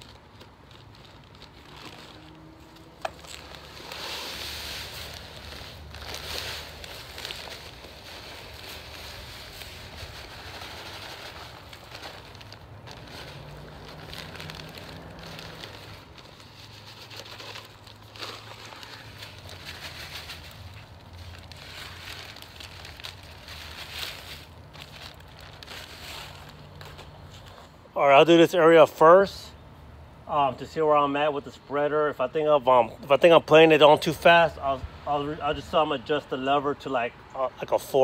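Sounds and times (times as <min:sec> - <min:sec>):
pellets poured from a bag: 0:00.0 - 0:27.4.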